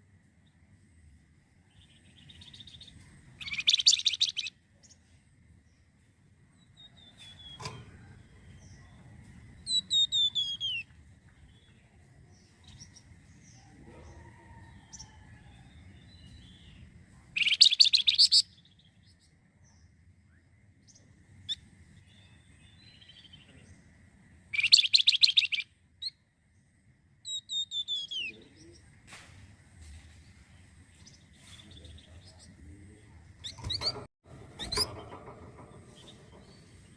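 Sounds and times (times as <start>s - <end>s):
songbird singing: 0.0s - 36.9s
loud rapid rattling bird call: 3.4s - 4.5s, 17.4s - 18.5s, 24.5s - 25.6s.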